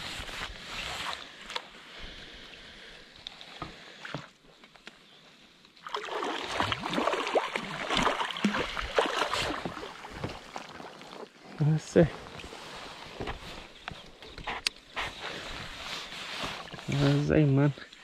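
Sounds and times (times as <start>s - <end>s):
fish splashing in water: 5.8s - 11.0s.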